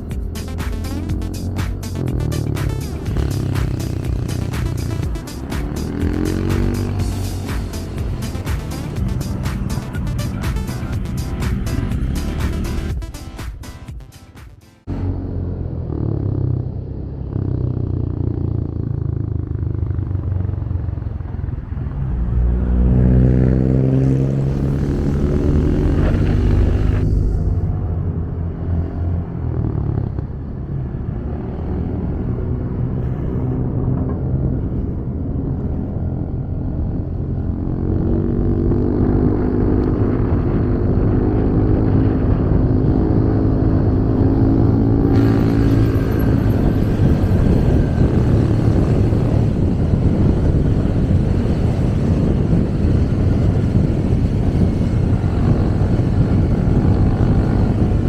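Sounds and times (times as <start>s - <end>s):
motorcycle engine accelerating: 0.0s - 13.8s, 14.8s - 58.0s
road noise: 0.0s - 58.0s
rush of wind: 20.4s - 29.8s, 30.6s - 58.0s.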